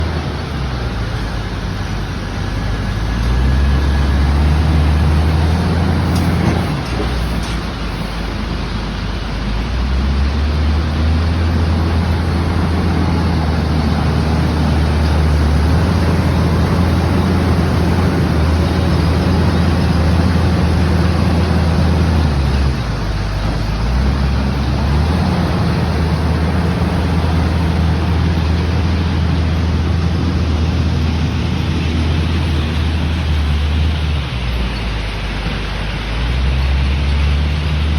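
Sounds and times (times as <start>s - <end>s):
heavy diesel engine running: 0.0s - 37.9s.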